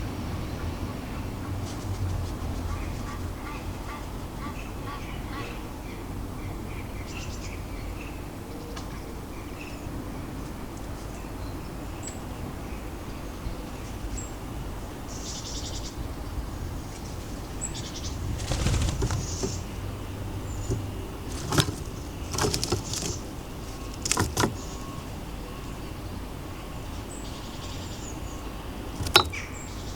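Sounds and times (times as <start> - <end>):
low city rumble: 0.0 - 8.1, 13.1 - 29.9
small birds chirping: 15.4 - 25.9.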